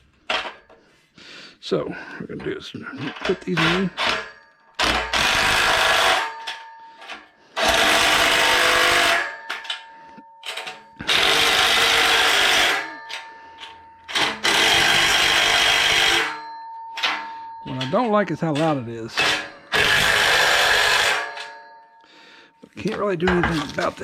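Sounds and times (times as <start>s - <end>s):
power drill running: 4.8s - 6.3s, 7.6s - 9.3s, 11.0s - 13.2s, 14.1s - 16.3s, 19.2s - 21.5s.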